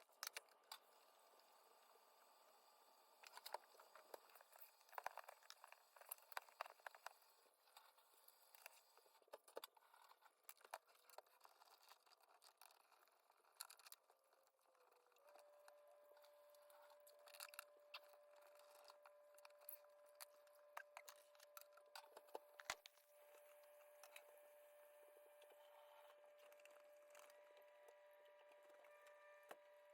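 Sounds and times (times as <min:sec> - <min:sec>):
faint steady tone: 0:13.5 - 0:29.9.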